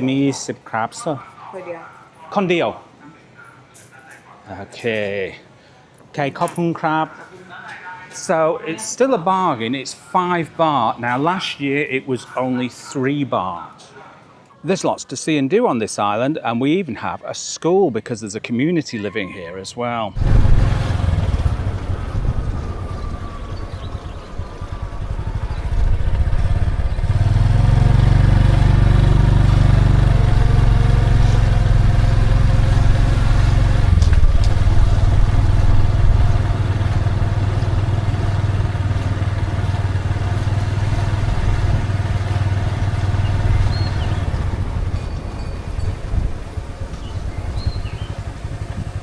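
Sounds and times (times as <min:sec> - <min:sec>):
small engine humming: 0:20.2 - 0:49.0.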